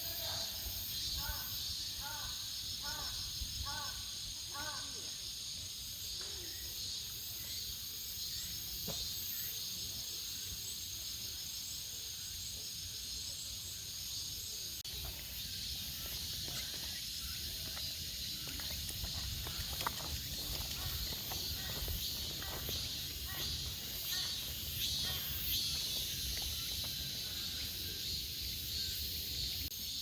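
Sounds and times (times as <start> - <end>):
insects chorus: 0.0 - 30.0
footstep clicks: 17.6 - 24.4.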